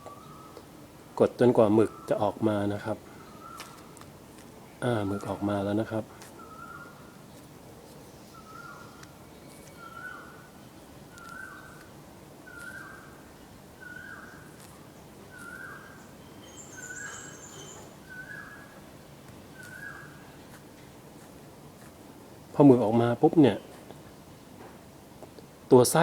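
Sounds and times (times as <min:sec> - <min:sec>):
high-pitched bird chirps: 0:12.5 - 0:13.1, 0:13.8 - 0:18.7.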